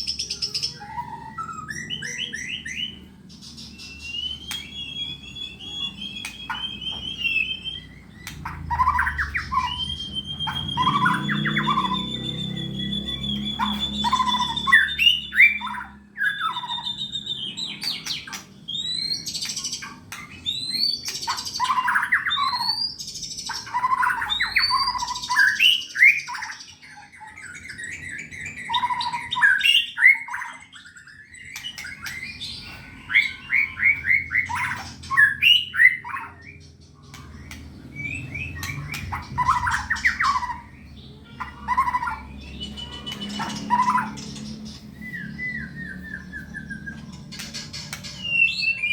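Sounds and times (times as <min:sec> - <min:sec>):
songbird whistling and trilling: 0:00.0 - 0:48.9
bird harsh squawks: 0:05.6 - 0:17.0, 0:31.8 - 0:48.9.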